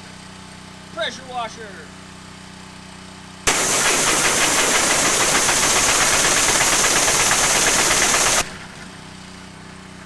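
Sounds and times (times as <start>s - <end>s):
high-pressure water spray hissing: 3.5s - 8.5s
pressure washer engine running: 3.5s - 8.8s.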